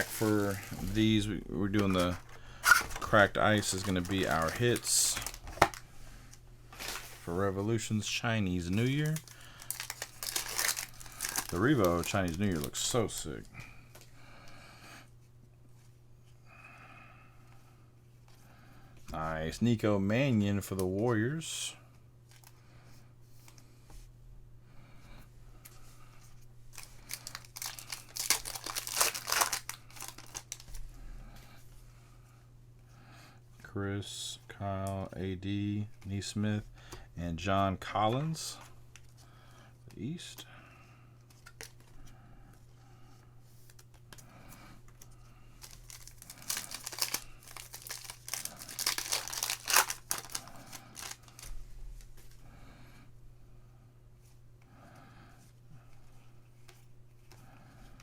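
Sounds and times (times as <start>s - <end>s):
foil wrapper tearing and crinkling: 0.0s - 1.2s, 1.8s - 5.8s, 8.8s - 12.9s, 26.8s - 30.7s, 45.6s - 51.5s.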